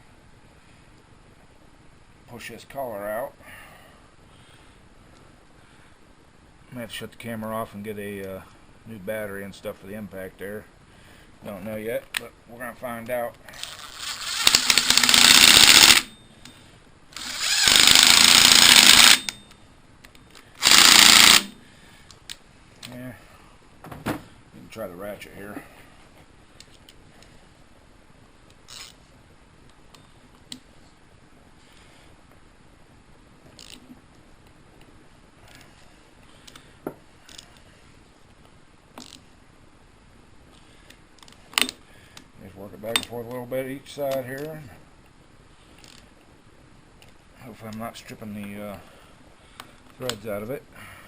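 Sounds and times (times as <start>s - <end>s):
impact wrench hammering: 14.4s - 16.1s, 17.2s - 19.4s, 20.6s - 21.6s.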